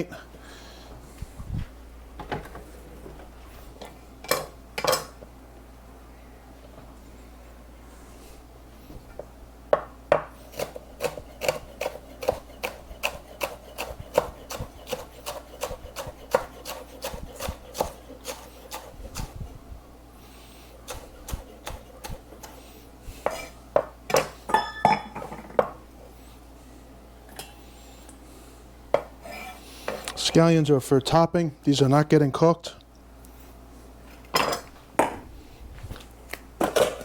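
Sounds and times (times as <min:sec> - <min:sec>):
knife chopping on a cutting board: 0:09.8 - 0:19.4, 0:20.8 - 0:22.6, 0:23.2 - 0:24.4.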